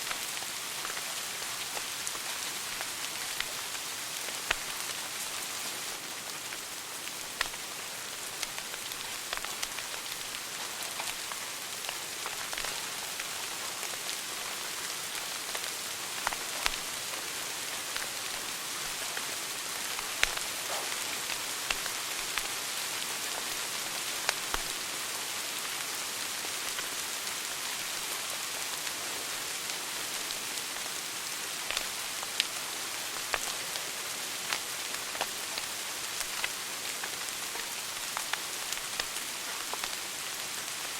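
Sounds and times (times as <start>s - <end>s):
fire crackling and popping: 0.0s - 25.8s, 26.6s - 40.9s.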